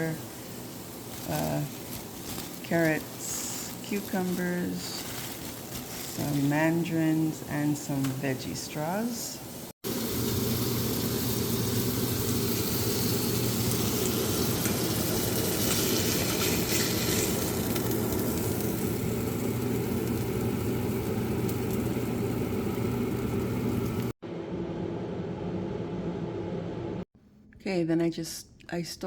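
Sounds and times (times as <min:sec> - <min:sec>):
low kitchen hum: 0:00.0 - 0:28.7
patty sizzling in a pan: 0:09.1 - 0:24.1.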